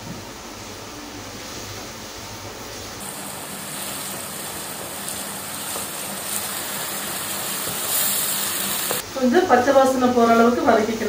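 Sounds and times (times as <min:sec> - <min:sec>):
wooden spatula stirring in a pan: 0:03.0 - 0:09.0
onions sizzling in hot oil: 0:03.0 - 0:11.0.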